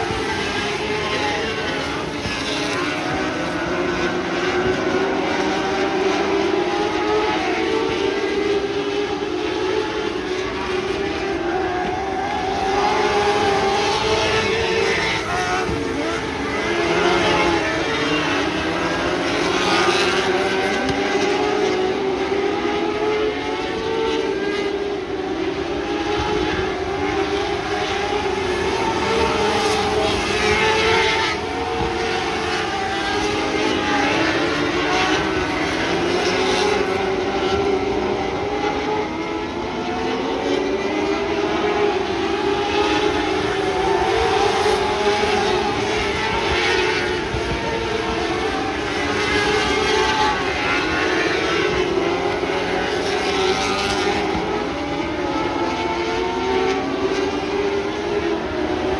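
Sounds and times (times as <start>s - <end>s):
race car engines at high revs: 0.0s - 58.9s.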